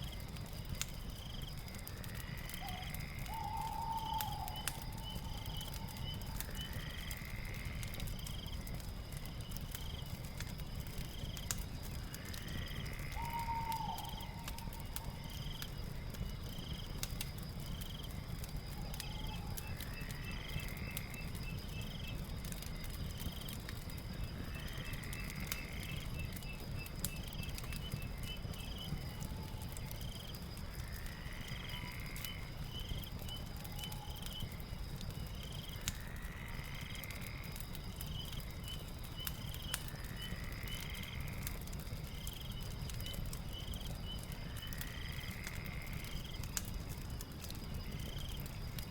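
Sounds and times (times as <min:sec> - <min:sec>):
fire crackling: 0:00.0 - 0:48.9
insect chirps: 0:00.0 - 0:48.9
high insect drone: 0:11.0 - 0:48.9.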